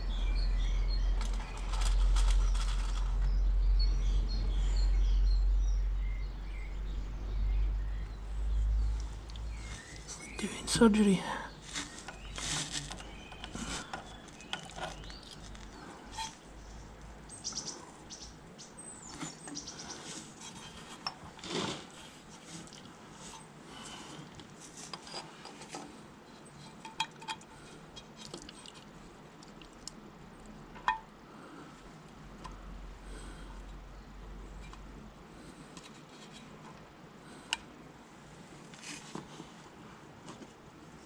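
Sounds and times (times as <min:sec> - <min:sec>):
metal parts clicking and scraping: 0:01.2 - 0:03.2, 0:11.7 - 0:16.4
tool being handled: 0:11.7 - 0:16.4.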